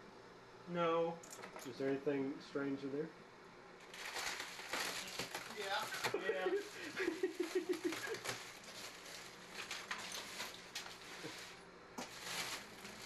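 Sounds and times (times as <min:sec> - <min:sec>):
packages rustling: 0:03.8 - 0:13.0.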